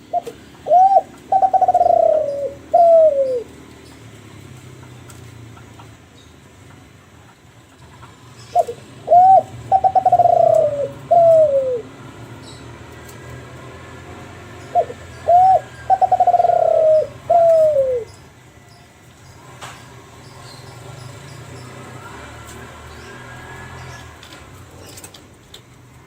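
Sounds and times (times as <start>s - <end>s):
dove cooing: 0.0s - 3.7s, 8.4s - 12.2s, 14.1s - 18.2s.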